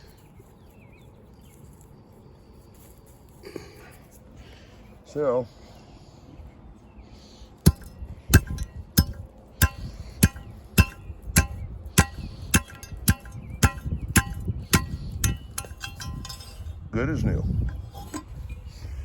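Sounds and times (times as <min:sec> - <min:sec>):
steel tool striking ground: 0:07.6 - 0:16.9, 0:17.5 - 0:18.7.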